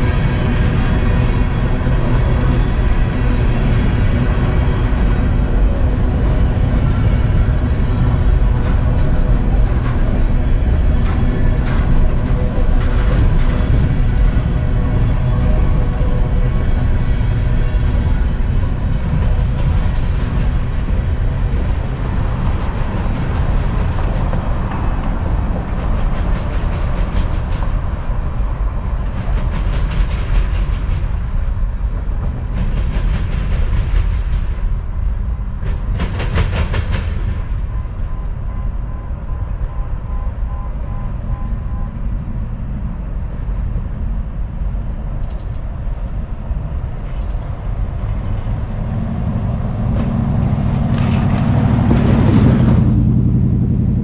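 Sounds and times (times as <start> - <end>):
train cars rumbling past: 0.0 - 54.0.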